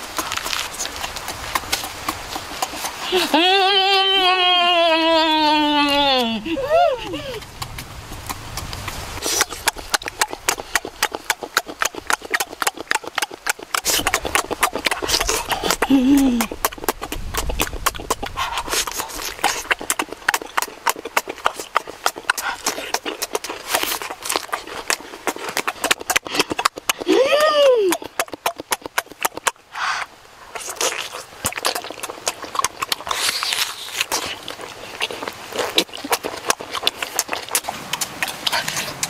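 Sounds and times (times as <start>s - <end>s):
crunchy chewing of cucumber: 0.0s - 4.2s, 5.9s - 39.0s.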